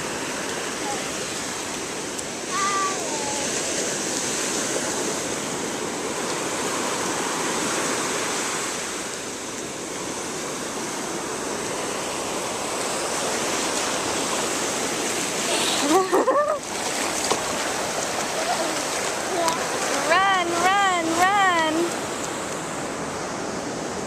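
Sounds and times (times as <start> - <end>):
ocean waves breaking on beach: 0.0 - 24.0.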